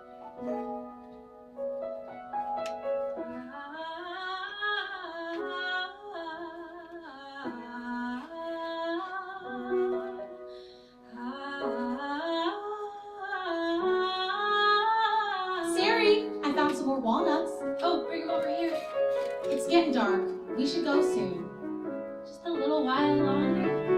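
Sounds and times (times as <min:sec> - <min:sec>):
women singing wordless melody: 0:03.3 - 0:10.3, 0:11.1 - 0:17.4.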